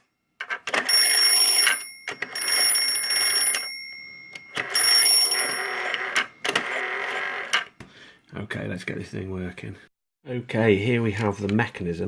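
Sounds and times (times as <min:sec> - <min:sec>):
toy telephone bell ringing: 0:00.7 - 0:07.5.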